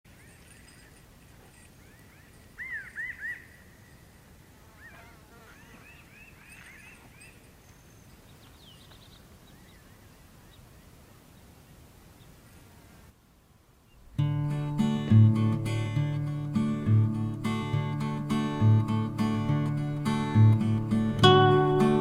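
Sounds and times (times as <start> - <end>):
birds chirping: 0.1 - 13.0
low background hiss: 0.1 - 22.0.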